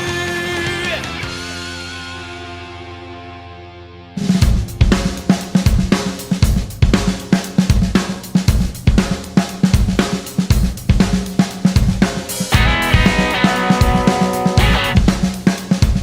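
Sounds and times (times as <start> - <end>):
punk rock instrumental: 0.0 - 16.0
drum kit playing fast: 4.2 - 16.0
steady bass note: 12.6 - 15.1.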